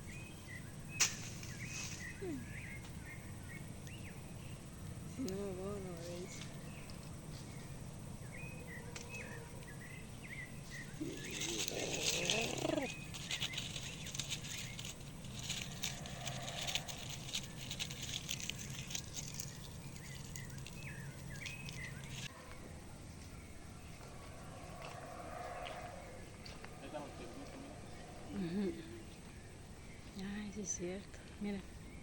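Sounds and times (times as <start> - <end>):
small birds chirping: 0.0 - 22.3, 23.1 - 32.0
steady low hum: 0.0 - 32.0
wavering bird call: 10.9 - 13.6
crackling noise: 10.9 - 29.4.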